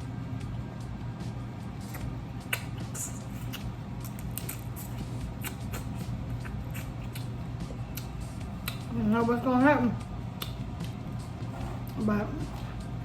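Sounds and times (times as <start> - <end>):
steady low hum: 0.0 - 13.0
wet chewing: 1.8 - 9.0, 10.4 - 13.0
crab shells cracking: 2.4 - 7.3.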